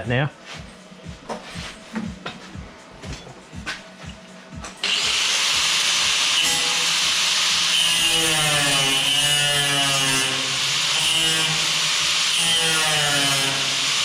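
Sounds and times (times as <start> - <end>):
power tool cutting sheet steel: 4.8 - 14.0.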